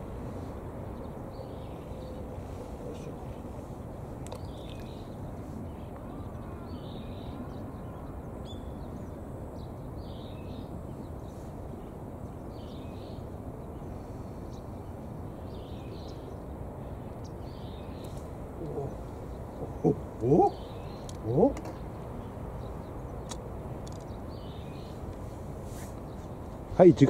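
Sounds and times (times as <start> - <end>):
outdoor background noise by water: 0.0 - 27.0
faint short bird calls: 17.6 - 21.8.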